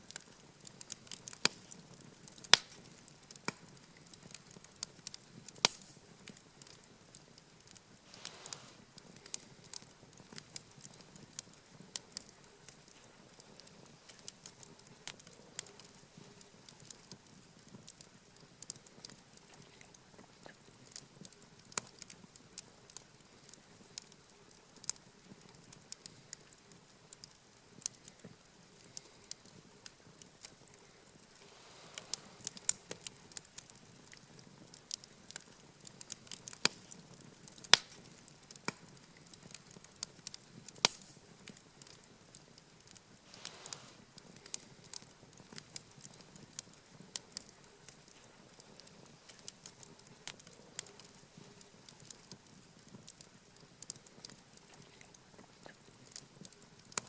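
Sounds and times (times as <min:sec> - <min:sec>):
campfire crackling and popping: 0:00.0 - 0:57.0
soft hiss of flame: 0:00.0 - 0:57.0.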